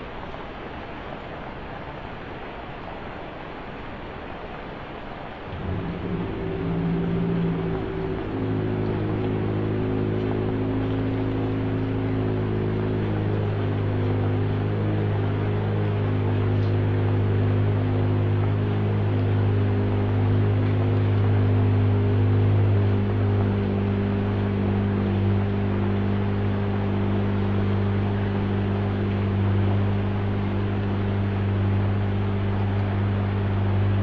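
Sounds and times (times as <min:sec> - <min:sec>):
rain falling: 0:00.0 - 0:34.0
slow sustained background music: 0:05.5 - 0:34.0.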